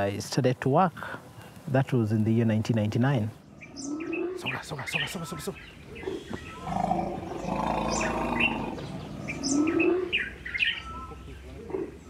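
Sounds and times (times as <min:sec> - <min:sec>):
birds chirping: 0:00.0 - 0:12.0
louder lower bird call: 0:03.6 - 0:11.2.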